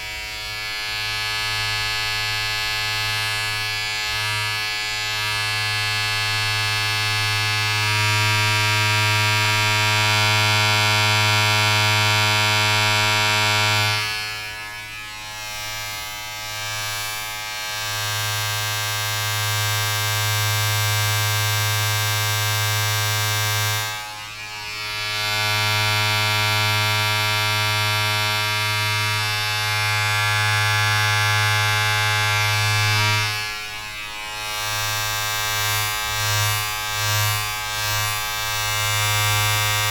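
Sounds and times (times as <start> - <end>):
electric buzz of vibrating appliance: 0.0 - 39.9.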